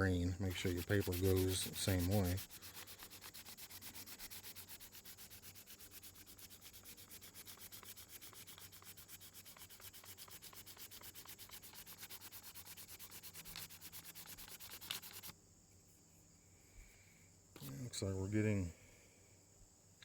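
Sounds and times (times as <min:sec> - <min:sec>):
sandpaper strokes on wood: 0:00.3 - 0:15.3.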